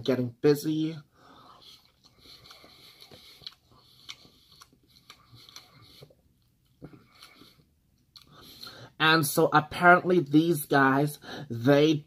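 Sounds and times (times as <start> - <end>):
faint chewing with mouth clicks: 1.2 - 8.9.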